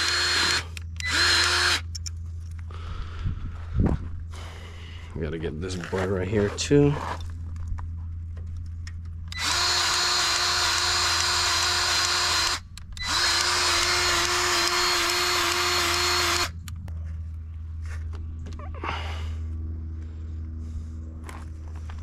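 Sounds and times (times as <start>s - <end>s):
grease gun motor running: 0.0s - 2.1s, 9.2s - 16.7s.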